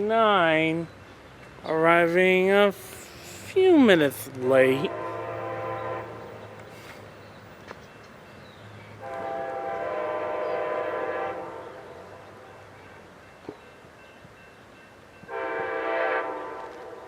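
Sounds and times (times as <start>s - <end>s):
train rumbling: 0.0s - 17.0s
train horn blasts: 4.9s - 6.6s, 9.0s - 12.8s, 15.3s - 17.0s.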